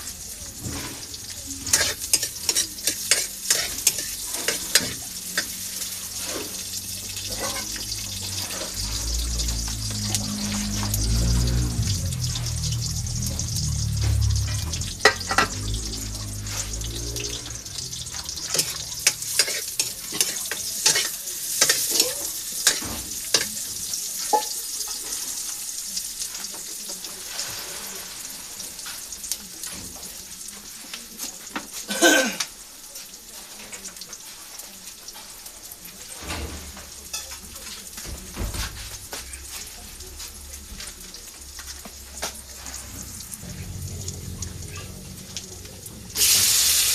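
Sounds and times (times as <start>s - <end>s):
food sizzling in a pan: 0.0s - 46.9s
utensil scraping a pan: 0.6s - 11.0s, 14.4s - 23.5s.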